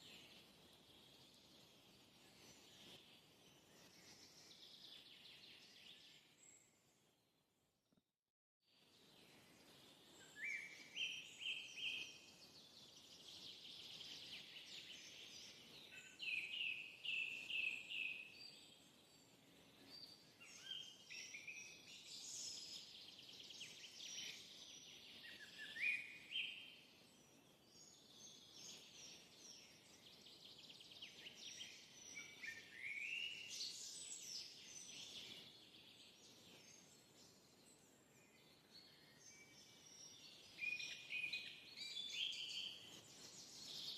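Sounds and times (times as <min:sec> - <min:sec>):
birds singing: 0:09.7 - 0:43.9.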